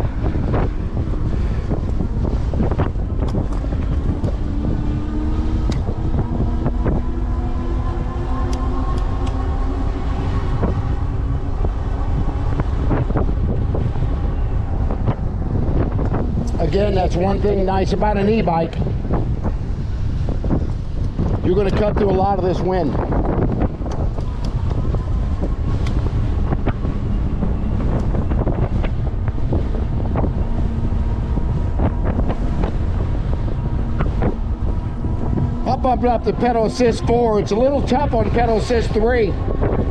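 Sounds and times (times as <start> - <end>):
steady hum: 0.0 - 39.9
wind buffeting microphone: 0.0 - 39.9.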